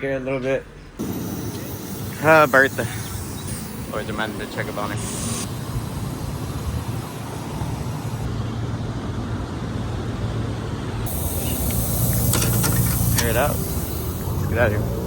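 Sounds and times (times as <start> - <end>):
car engine running: 1.0 - 15.0.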